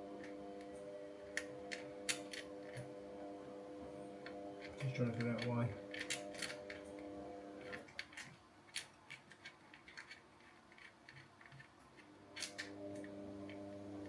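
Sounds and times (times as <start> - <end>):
faint steady hum: 0.0 - 14.0
clicks and taps on cable terminal: 4.3 - 6.8.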